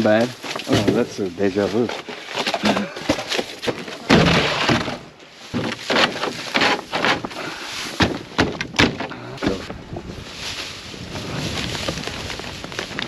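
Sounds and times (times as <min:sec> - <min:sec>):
hard items clattering in a dumpster: 0:00.0 - 0:09.7
sharp crashes: 0:04.1 - 0:05.7.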